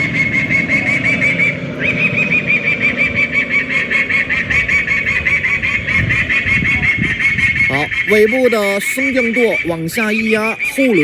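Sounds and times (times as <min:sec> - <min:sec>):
low rumble: 0:00.0 - 0:10.1
chirping bird calls over loudspeaker: 0:00.0 - 0:11.0.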